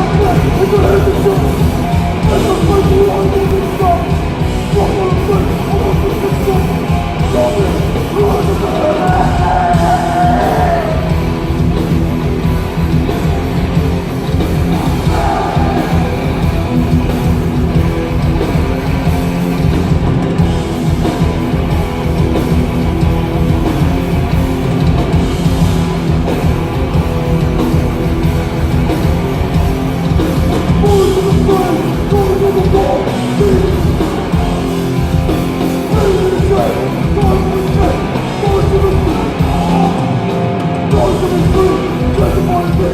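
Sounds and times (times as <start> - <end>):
vocals: 0.0 - 12.0, 13.3 - 18.0, 30.0 - 42.9
distorted electric guitars: 0.0 - 42.9
pounding drum kit: 0.0 - 42.9
punk band playing loud: 0.0 - 42.9.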